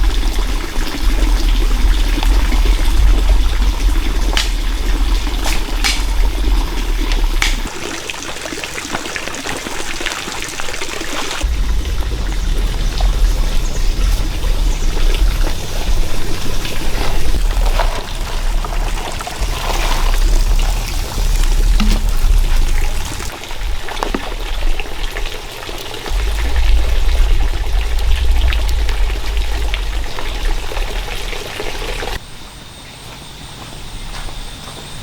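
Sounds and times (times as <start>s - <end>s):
low rumble: 0.0s - 7.7s, 11.4s - 25.2s, 26.1s - 32.2s
water pouring and trickling: 0.0s - 32.2s
sharp clicks: 7.1s - 7.7s.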